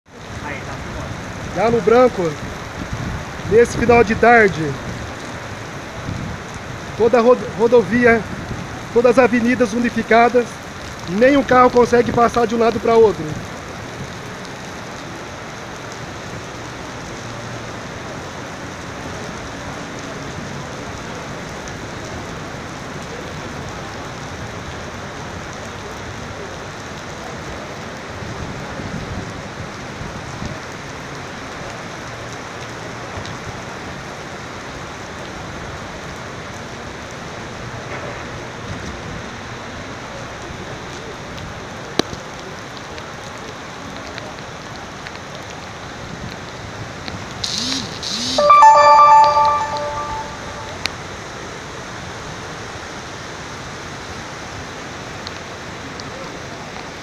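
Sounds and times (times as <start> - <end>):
steady rain falling: 0.1 - 57.0.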